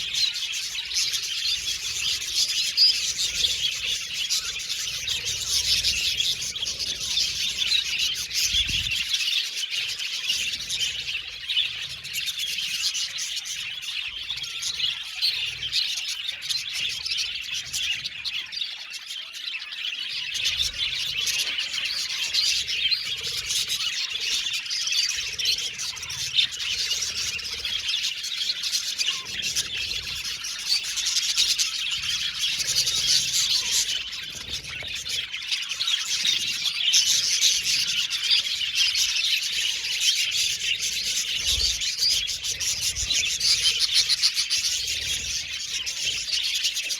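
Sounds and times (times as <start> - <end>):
budgerigars chirping: 0.0 - 46.9.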